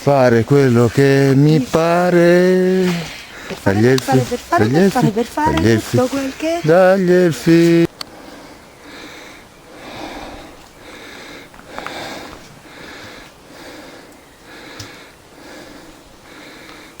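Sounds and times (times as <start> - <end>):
person breathing hard: 2.8 - 3.7, 8.0 - 17.0.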